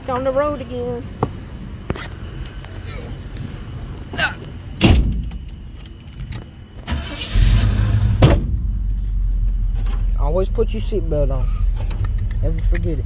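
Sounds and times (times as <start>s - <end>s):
car engine starting and running: 6.7s - 13.0s
car door shutting: 7.2s - 8.9s.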